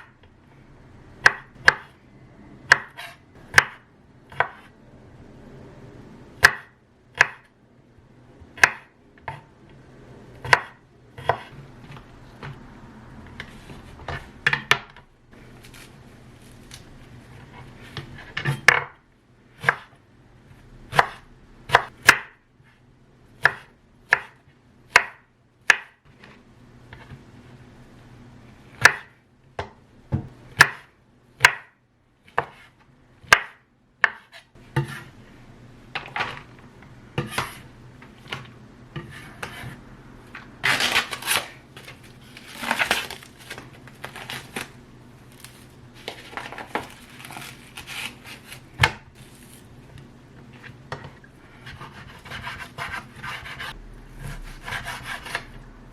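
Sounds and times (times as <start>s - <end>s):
knife chopping on cutting board: 1.2s - 1.9s, 2.6s - 4.7s, 6.4s - 7.5s, 10.4s - 12.6s, 19.6s - 19.9s, 20.9s - 22.4s, 23.4s - 26.0s, 30.1s - 35.1s, 37.2s - 37.6s, 51.6s - 55.5s.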